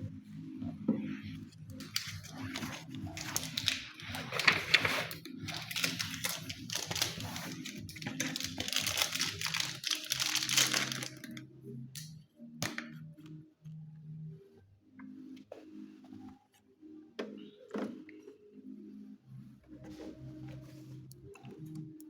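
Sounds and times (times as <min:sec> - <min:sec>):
plastic packaging crinkling: 0:01.8 - 0:11.4.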